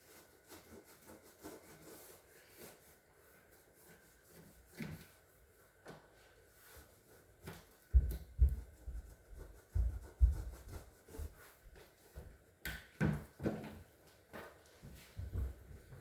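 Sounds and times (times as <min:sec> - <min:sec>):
dull thumps and rubbing: 0:07.4 - 0:12.4.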